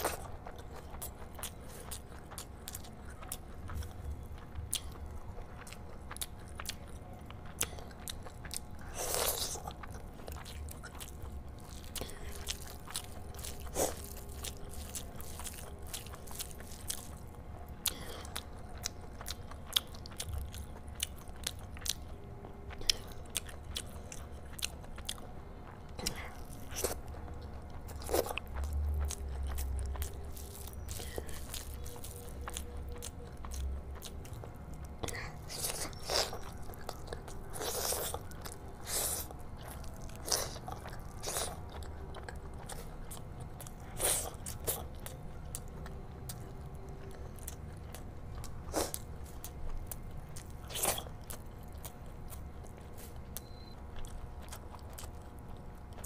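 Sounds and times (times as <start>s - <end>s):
chewing and wet mouth sounds: 0.0s - 56.0s.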